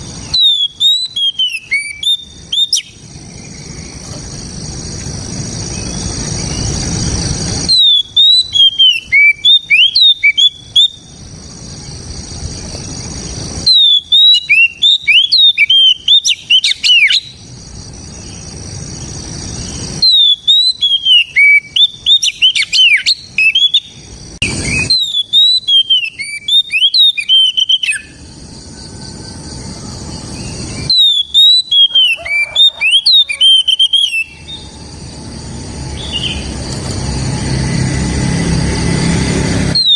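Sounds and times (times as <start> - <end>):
bird singing whistled song: 0.0 - 4.2, 5.7 - 11.2, 11.8 - 17.5, 18.1 - 34.8, 35.9 - 36.6, 39.6 - 39.9
steady hiss: 1.5 - 7.8.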